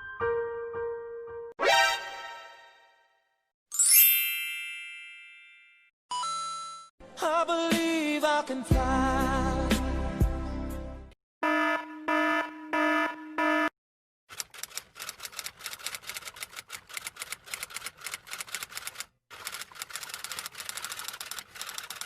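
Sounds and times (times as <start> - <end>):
buzzer alarm tone: 11.4 - 13.7
fast typing on keyboard: 14.3 - 22.0.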